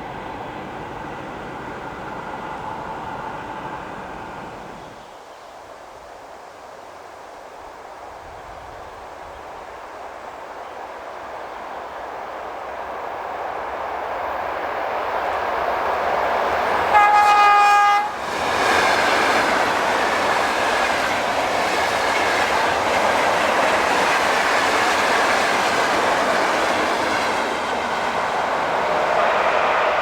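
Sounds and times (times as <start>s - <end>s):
train wheels rolling on rails: 0.0s - 5.1s, 9.0s - 30.0s
train horn: 16.8s - 19.0s.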